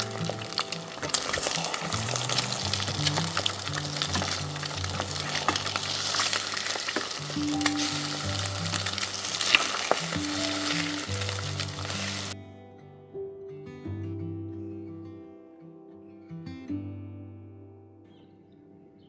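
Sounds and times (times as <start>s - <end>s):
food sizzling in a pan: 0.0s - 12.4s
utensil clicking in pan: 0.0s - 12.4s
soft music: 0.0s - 19.0s.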